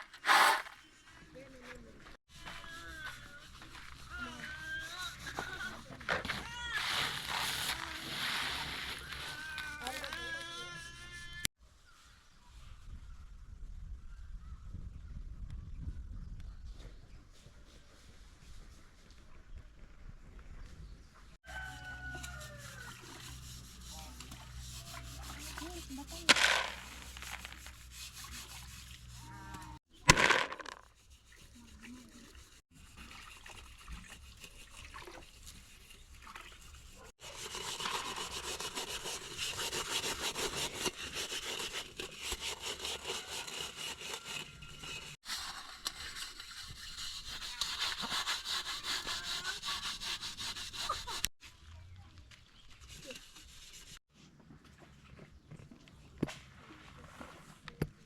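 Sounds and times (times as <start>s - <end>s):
loud short sounds: 0.0s - 0.8s.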